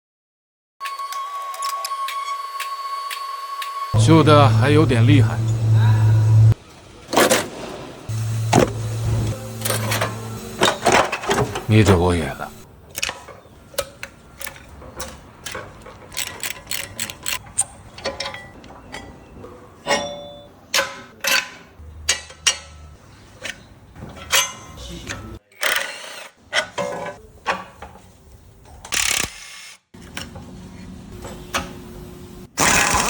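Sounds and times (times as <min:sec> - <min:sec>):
ratchet wrench clicking: 0:16.1 - 0:17.7, 0:28.9 - 0:29.4.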